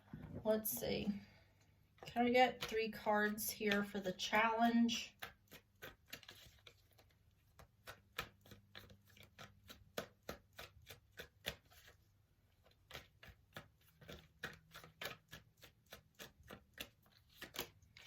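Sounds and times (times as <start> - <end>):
cards being shuffled: 5.1 - 12.0, 12.6 - 18.0.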